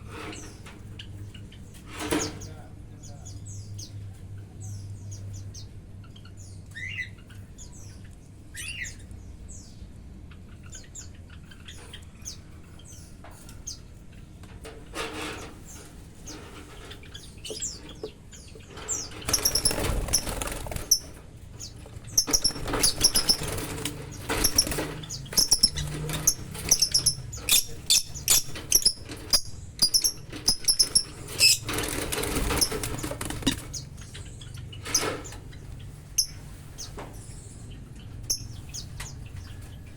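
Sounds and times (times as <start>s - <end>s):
lovebirds chirping: 15.6s - 39.9s
wing flapping: 19.2s - 21.2s, 28.4s - 33.9s.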